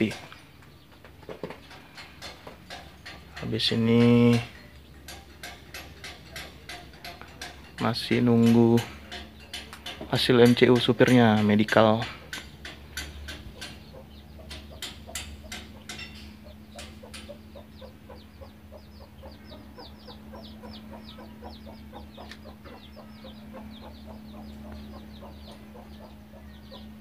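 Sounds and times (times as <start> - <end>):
steady low hum: 0.0 - 27.0
bird chirping rapidly: 12.6 - 27.0.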